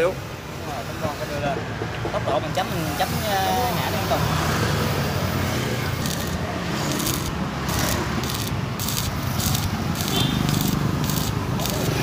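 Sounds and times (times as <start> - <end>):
welding arc crackling and sizzling: 5.9 - 12.0.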